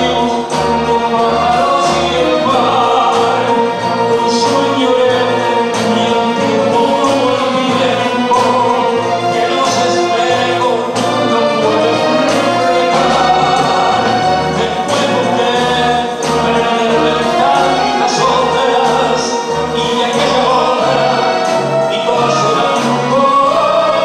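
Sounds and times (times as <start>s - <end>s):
band playing tango: 0.0s - 24.0s
man singing: 0.0s - 24.0s.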